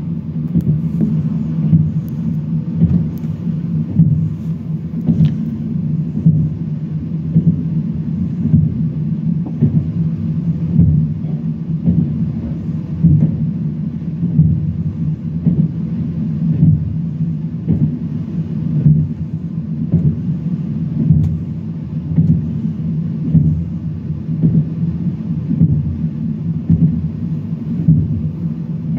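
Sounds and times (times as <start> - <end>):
train wheels rumbling on rails: 0.5 - 6.5.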